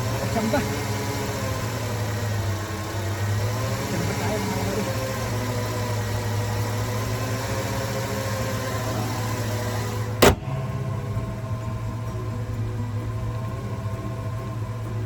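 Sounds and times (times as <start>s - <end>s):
car engine idling: 0.0s - 15.0s
sharp click: 10.2s - 10.6s.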